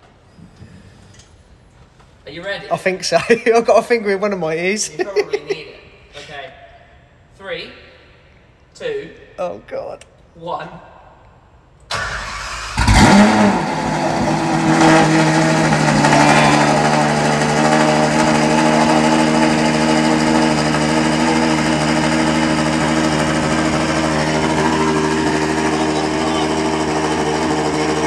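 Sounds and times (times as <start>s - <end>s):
car engine cold start and idle: 11.9s - 28.0s.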